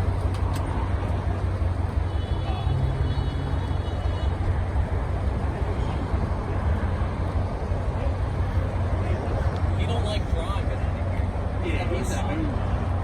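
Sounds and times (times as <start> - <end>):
car engines rumbling: 0.0 - 13.0.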